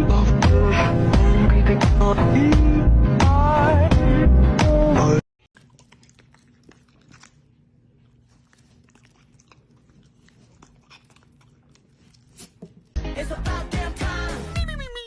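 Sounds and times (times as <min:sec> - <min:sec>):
chewing clicks and crunches: 0:05.4 - 0:13.0.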